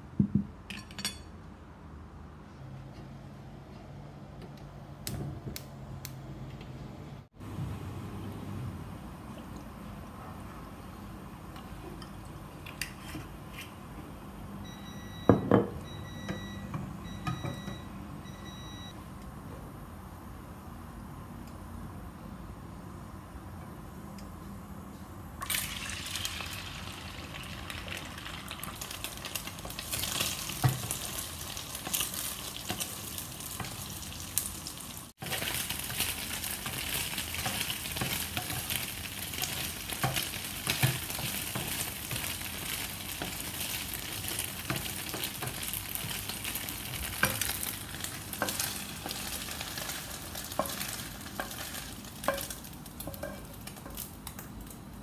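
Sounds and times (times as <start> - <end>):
tofu sizzling in hot oil: 25.4 - 54.1.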